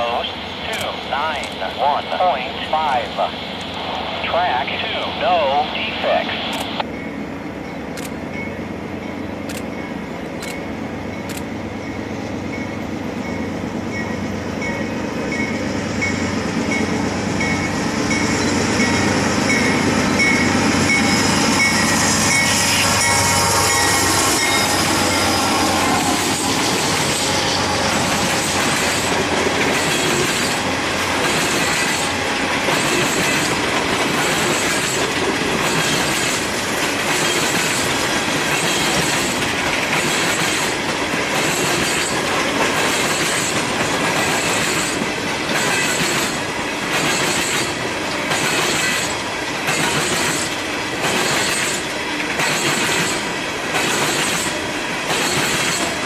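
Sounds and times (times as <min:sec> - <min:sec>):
diesel locomotives passing: 0:00.0 - 0:56.0
train bell ringing: 0:06.8 - 0:30.6
high wheel squeals: 0:19.6 - 0:29.1
wheels clacking over rail joints: 0:20.2 - 0:56.0.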